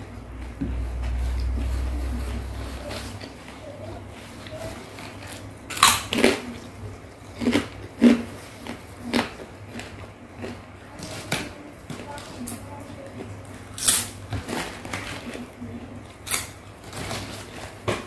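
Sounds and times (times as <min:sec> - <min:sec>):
person chewing: 0:01.3 - 0:11.5, 0:12.5 - 0:14.3.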